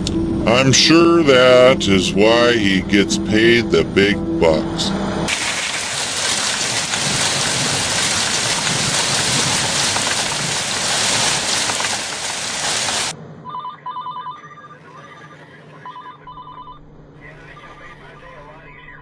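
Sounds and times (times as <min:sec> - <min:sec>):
loud steady hiss: 0:05.3 - 0:13.1.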